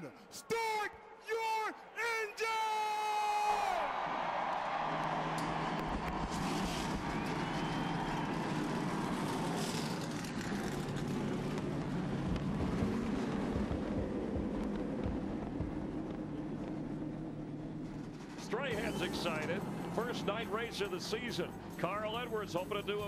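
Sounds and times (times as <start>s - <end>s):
engine revs: 5.2s - 21.9s
stock car engines running together: 5.4s - 23.0s.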